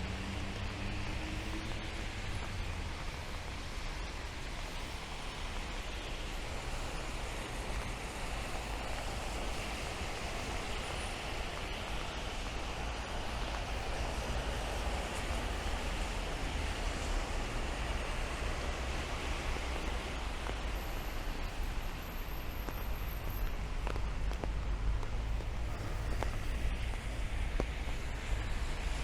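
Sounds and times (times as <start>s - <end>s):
low rumble of traffic: 0.0s - 29.0s
rain falling on street: 0.0s - 29.0s.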